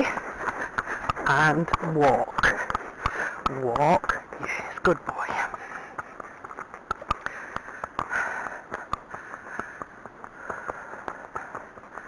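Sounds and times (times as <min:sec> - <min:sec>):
horse hooves walking on track: 0:00.0 - 0:12.0.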